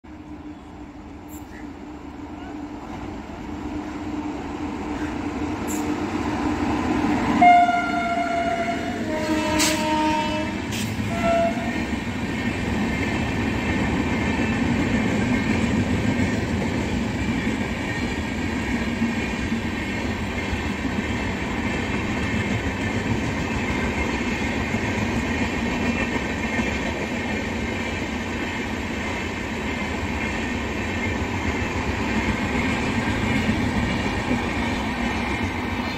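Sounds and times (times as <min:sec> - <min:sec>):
rumble of train coaches rolling: 0:00.0 - 0:35.9
train horn blasts: 0:07.4 - 0:11.9.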